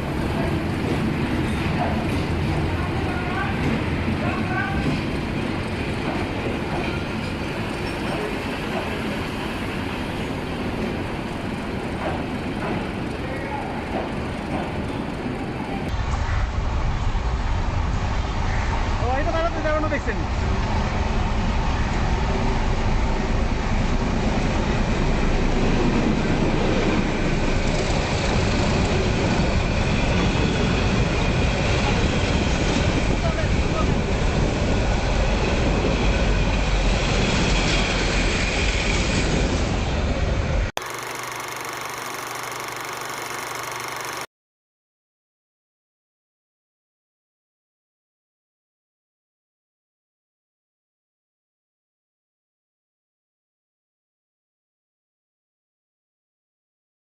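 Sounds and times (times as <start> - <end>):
train wheels on rails: 0.0 - 16.2
train wheels rumbling on rails: 0.0 - 19.0, 19.6 - 40.7.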